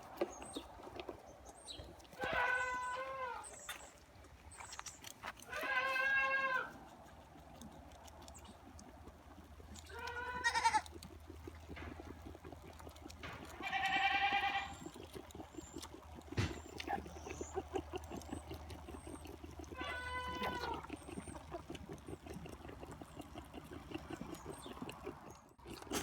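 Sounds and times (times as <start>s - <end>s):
goat kids bleating: 2.2s - 3.8s, 5.3s - 6.8s, 9.9s - 11.0s, 13.5s - 15.0s, 19.6s - 21.4s.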